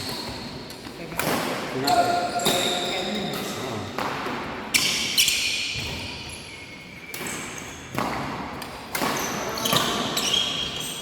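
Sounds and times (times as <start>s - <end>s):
badminton rackets hitting shuttlecock: 0.0s - 2.8s, 7.0s - 10.8s.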